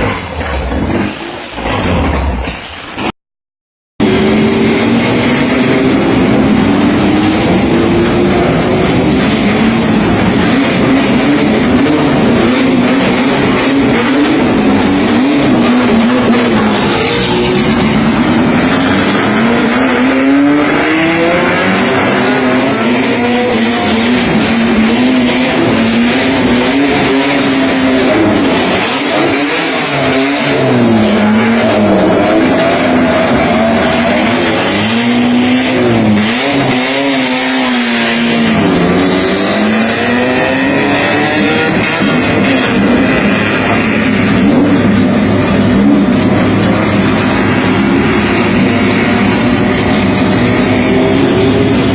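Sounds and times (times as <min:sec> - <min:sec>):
race car engine revving: 0:00.0 - 0:03.1, 0:04.0 - 0:51.9.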